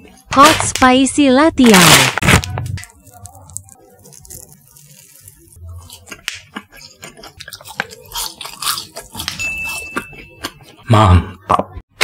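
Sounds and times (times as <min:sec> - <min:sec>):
chewing with moist clicks: 0:02.8 - 0:10.8.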